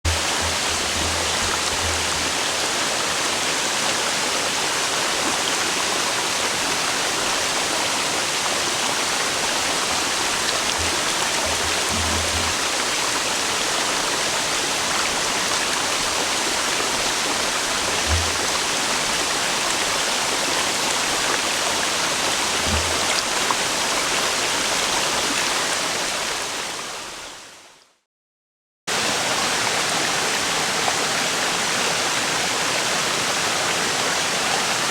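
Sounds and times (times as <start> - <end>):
low bumps: 0.1 - 2.9, 10.2 - 13.4, 17.6 - 19.3, 22.4 - 23.4
river rushing: 0.1 - 27.0.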